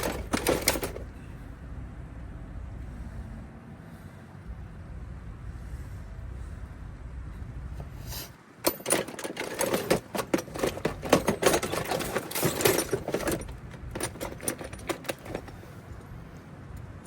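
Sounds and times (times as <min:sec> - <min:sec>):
metal hand tools clattering: 0:00.0 - 0:01.1, 0:08.6 - 0:15.6.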